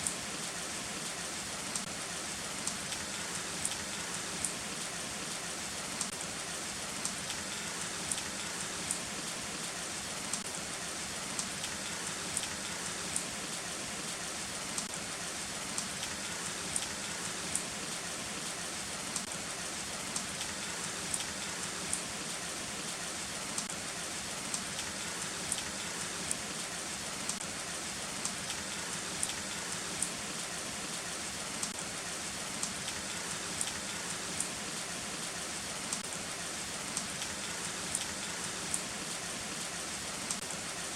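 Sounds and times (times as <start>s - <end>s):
heavy rain hissing: 0.0s - 40.9s
raindrops ticking: 1.1s - 2.0s, 2.6s - 4.9s, 6.0s - 6.2s, 7.0s - 10.5s, 11.2s - 14.1s, 14.7s - 14.9s, 15.7s - 19.4s, 20.0s - 23.8s, 24.4s - 26.6s, 27.2s - 27.5s, 28.1s - 31.0s, 31.6s - 31.8s, 32.4s - 39.2s, 40.2s - 40.5s.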